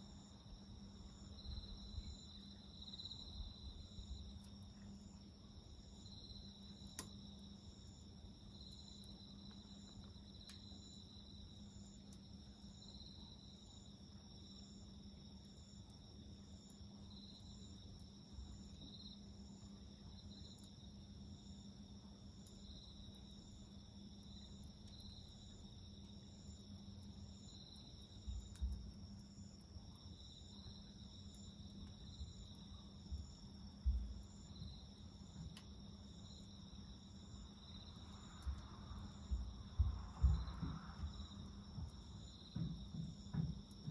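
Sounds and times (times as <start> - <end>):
crickets trilling: 0.0 - 43.9
soft low thumps: 33.2 - 34.2, 39.2 - 43.9.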